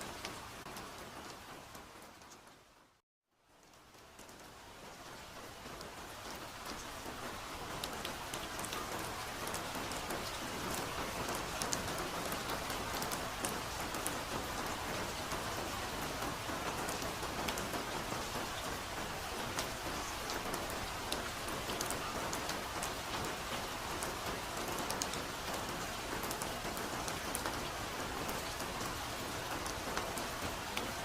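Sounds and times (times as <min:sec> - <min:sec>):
soft rain falling: 0:00.0 - 0:31.0.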